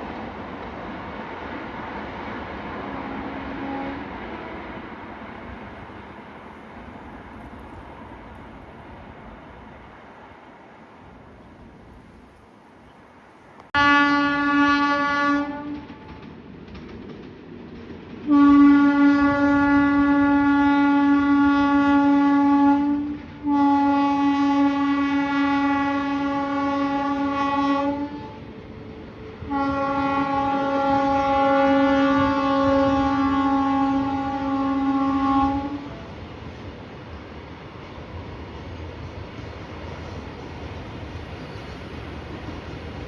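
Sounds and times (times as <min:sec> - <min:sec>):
passing train rumble: 0:00.0 - 0:43.0
locomotive horn blasts: 0:02.8 - 0:04.6, 0:13.8 - 0:16.0, 0:18.3 - 0:28.5, 0:29.3 - 0:36.1.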